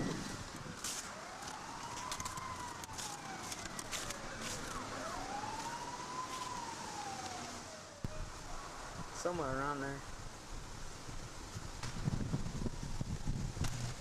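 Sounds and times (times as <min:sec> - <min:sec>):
emergency siren wailing: 0:00.0 - 0:09.0.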